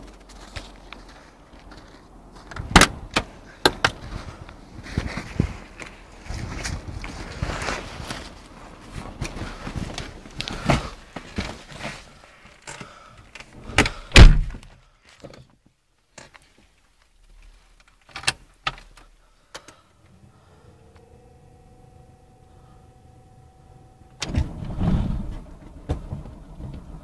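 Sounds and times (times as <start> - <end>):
shuffling and handling noises: 0.0 - 14.0, 14.6 - 19.8
car door shutting: 13.6 - 14.7, 22.6 - 27.0.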